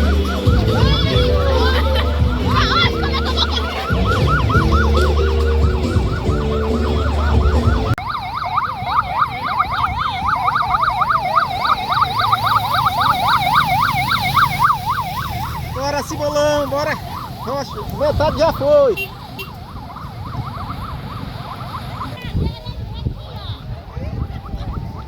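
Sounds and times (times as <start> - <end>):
music with heavy bass: 0.0 - 8.0
electronic siren yelping: 0.0 - 23.1, 23.9 - 25.0.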